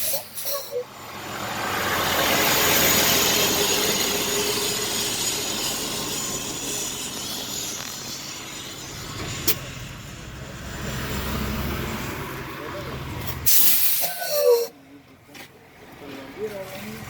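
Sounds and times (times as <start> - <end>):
air brake hissing: 0.0 - 0.9, 13.3 - 14.7.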